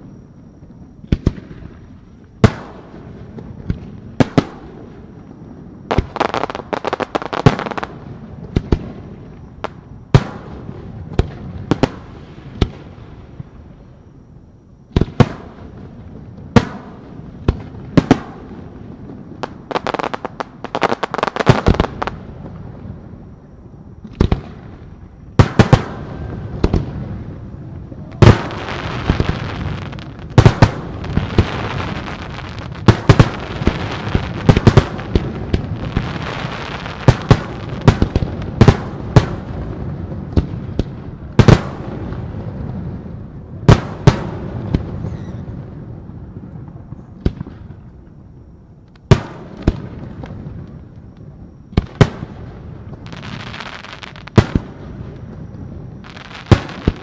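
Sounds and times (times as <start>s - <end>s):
rapid fireworks crackling: 0.0s - 13.8s, 14.9s - 23.2s, 24.0s - 57.0s
fireworks bangs: 14.9s - 23.2s, 24.0s - 48.4s, 49.0s - 57.0s.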